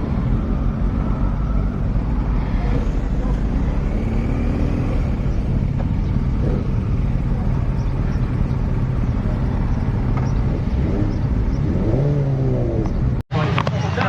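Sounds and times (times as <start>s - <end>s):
low wind rumble: 0.0s - 13.2s
motorcycle engine running: 0.0s - 13.2s.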